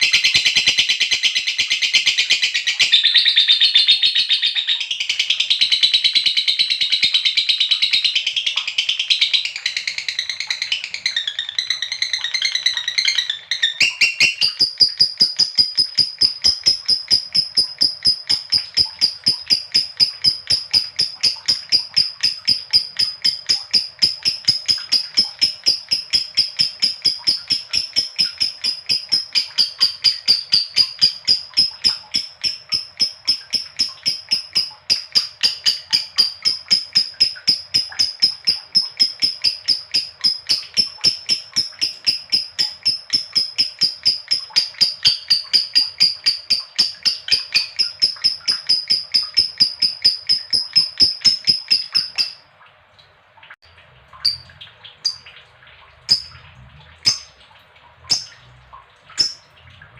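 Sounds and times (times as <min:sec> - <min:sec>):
lovebird chattering: 0:00.0 - 0:52.4, 0:58.1 - 0:58.4.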